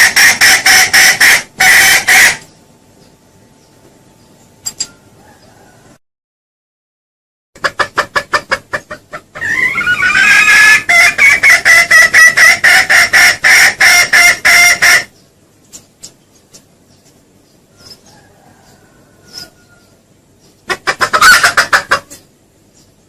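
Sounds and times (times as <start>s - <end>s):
junglefowl lure call cackling: 0.0s - 2.5s, 9.4s - 15.1s.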